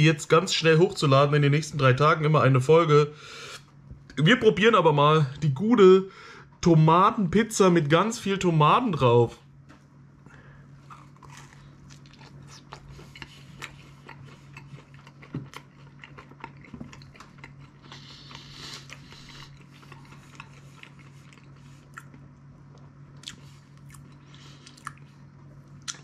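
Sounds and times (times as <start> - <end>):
steady low hum: 0.0 - 26.0
person chewing crispy pizza: 10.7 - 26.0.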